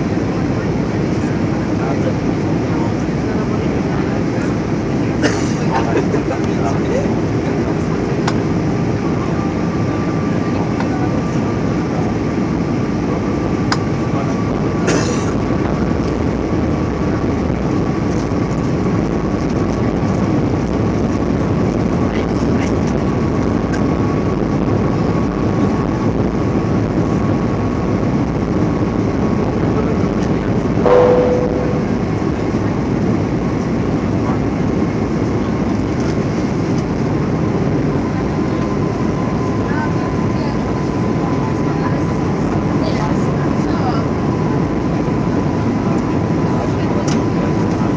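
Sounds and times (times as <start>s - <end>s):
airplane cabin engine noise: 0.0s - 47.9s
brief tone: 30.8s - 32.2s
faint steady whine: 30.8s - 32.4s.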